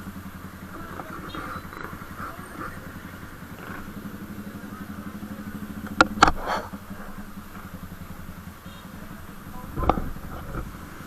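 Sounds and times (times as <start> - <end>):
motorcycle engine idling: 0.0 - 11.0
sharp clicks: 5.0 - 7.7.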